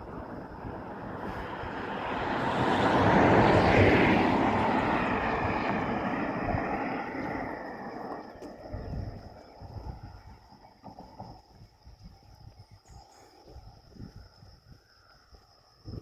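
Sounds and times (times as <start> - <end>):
passing vehicle rushing: 0.0 - 8.9.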